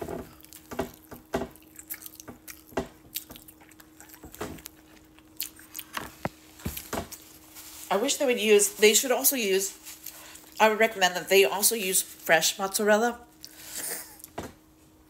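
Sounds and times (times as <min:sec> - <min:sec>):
faint hum: 0:00.0 - 0:15.0
wet chewing and smacking: 0:00.1 - 0:07.4.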